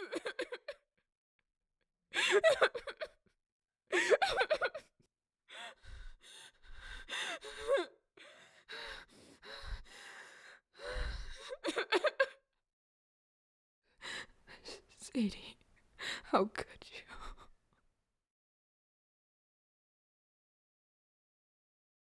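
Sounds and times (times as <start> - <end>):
person sobbing: 0.0 - 0.8, 2.2 - 3.2, 3.9 - 4.9, 7.1 - 8.5, 11.3 - 12.4.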